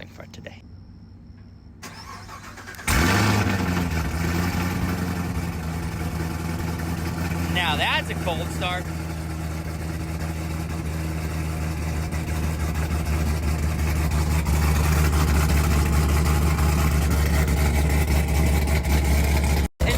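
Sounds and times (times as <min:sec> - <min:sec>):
engine idling: 0:00.0 - 0:19.9.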